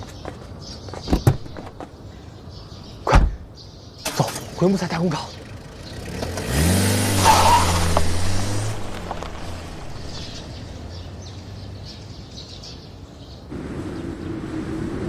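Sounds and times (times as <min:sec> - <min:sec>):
birds chirping faintly: 0:00.0 - 0:14.8
car engine revving and pulling away: 0:05.4 - 0:12.2, 0:13.5 - 0:15.0.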